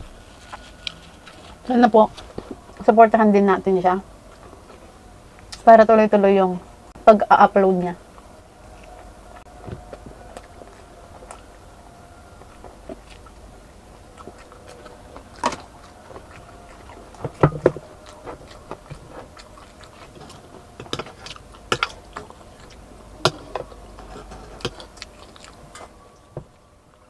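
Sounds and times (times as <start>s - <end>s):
chewing crispy fried chicken: 0.2s - 2.8s, 8.1s - 27.0s.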